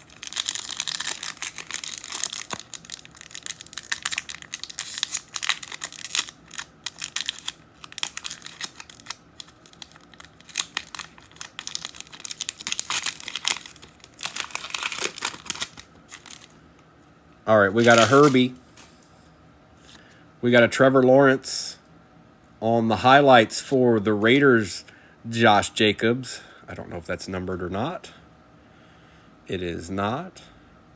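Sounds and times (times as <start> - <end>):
foil wrappers crinkling and tearing: 0.0 - 16.5, 17.7 - 19.0.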